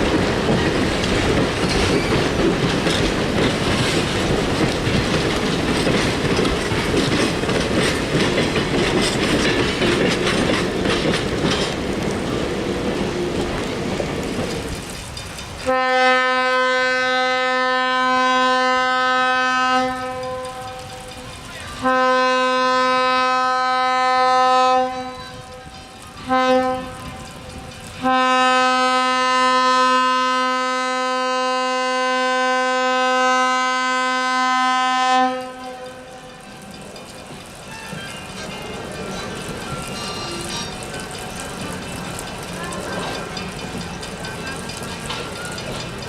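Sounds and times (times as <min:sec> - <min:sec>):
train running noise: 0:00.0 - 0:46.0
locomotive horn blasts: 0:15.6 - 0:20.9, 0:21.8 - 0:27.2, 0:28.0 - 0:36.4.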